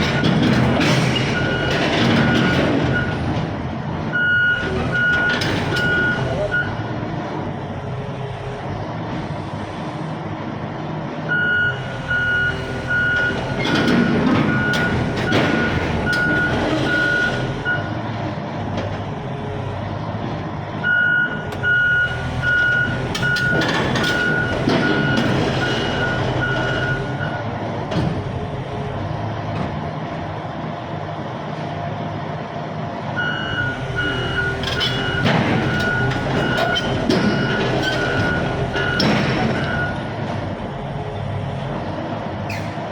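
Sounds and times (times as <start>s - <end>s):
clattering and rumbling: 0.0s - 7.5s, 12.0s - 20.6s, 21.5s - 30.3s, 33.6s - 42.9s
diesel engine running: 0.0s - 42.9s
machine warning alarm beeping: 4.2s - 6.9s, 11.3s - 18.0s, 20.8s - 27.4s, 33.2s - 40.2s.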